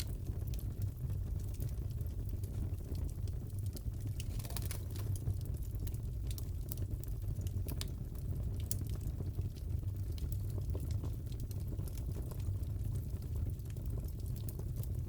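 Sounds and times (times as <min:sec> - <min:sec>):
low rumble of fire: 0:00.0 - 0:15.0
wood fire crackling: 0:00.0 - 0:15.0.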